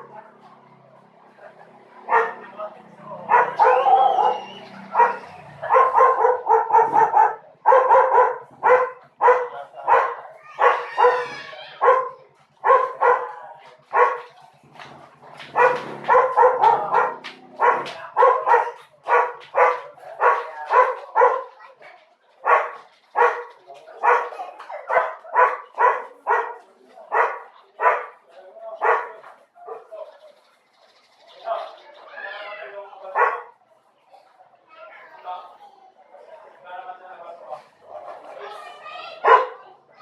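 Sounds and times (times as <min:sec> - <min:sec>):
dog barking: 0:02.0 - 0:02.5, 0:03.3 - 0:14.3, 0:15.4 - 0:21.6, 0:22.4 - 0:28.2, 0:28.8 - 0:29.9, 0:33.1 - 0:33.6, 0:39.2 - 0:39.6
dog wavering higher cry: 0:10.5 - 0:12.0.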